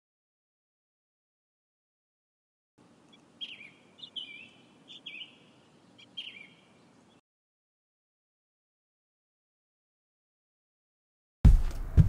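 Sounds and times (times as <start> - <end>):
faint background hum: 2.8 - 7.2
bird chirps: 3.0 - 7.2.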